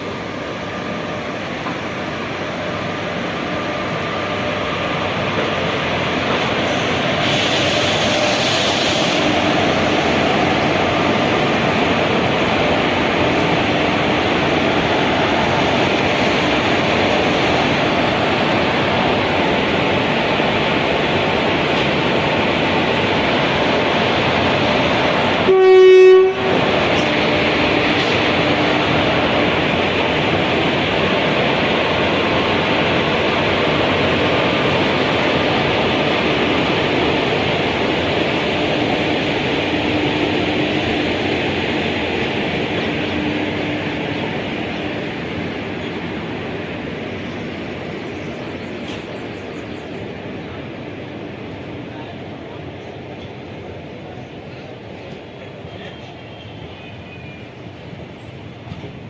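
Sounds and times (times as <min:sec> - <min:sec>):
train rumbling: 0:00.0 - 0:59.0
train horn blast: 0:06.7 - 0:10.0, 0:25.3 - 0:28.6.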